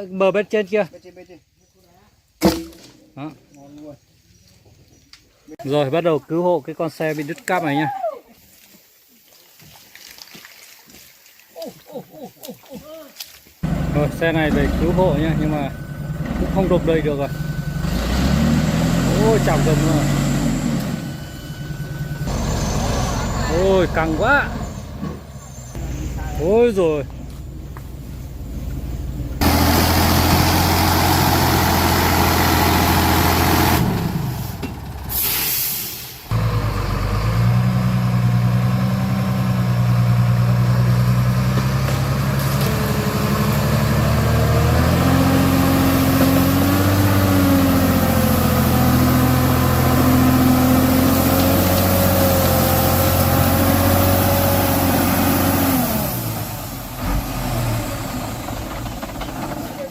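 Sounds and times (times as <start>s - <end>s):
truck diesel engine under load: 13.6s - 59.9s.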